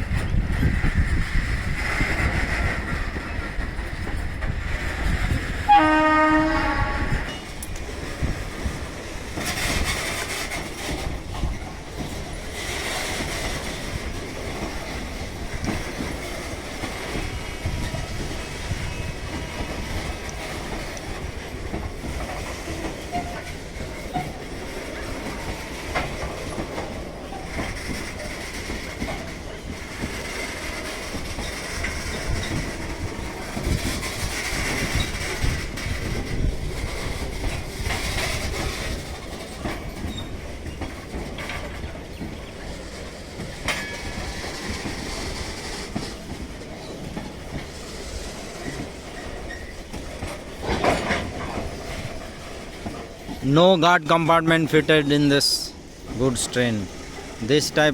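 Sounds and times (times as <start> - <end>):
train wheels clattering: 0.0 - 57.9
train horn blast: 5.7 - 7.4.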